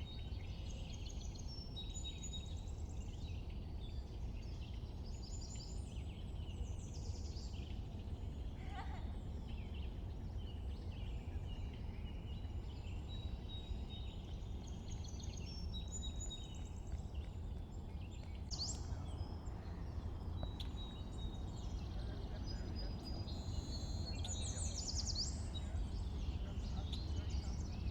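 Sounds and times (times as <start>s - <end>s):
low outdoor rumble: 14.3s - 27.9s
birds chirping and singing: 18.0s - 27.9s.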